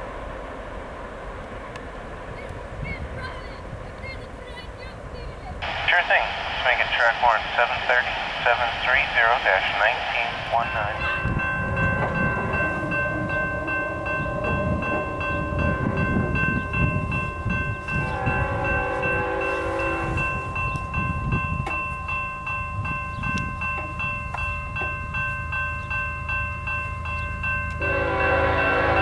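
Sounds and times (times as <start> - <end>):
train cars rumbling: 0.0 - 29.0
high-pitched tones: 5.6 - 28.0.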